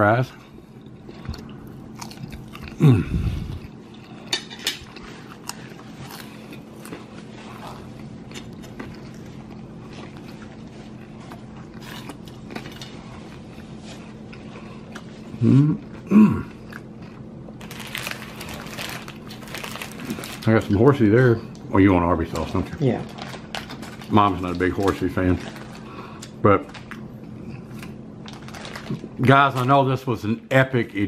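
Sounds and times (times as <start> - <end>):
steady low hum: 0.0 - 31.0
person chewing fries: 0.4 - 20.7, 21.5 - 29.2
short voiced hums: 2.8 - 3.6, 15.4 - 16.6.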